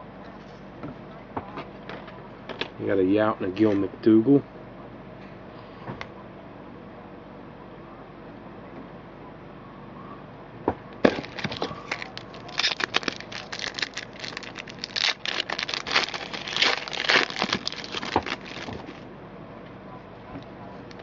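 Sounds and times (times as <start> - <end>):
card pack wrapper tearing: 11.0 - 19.0.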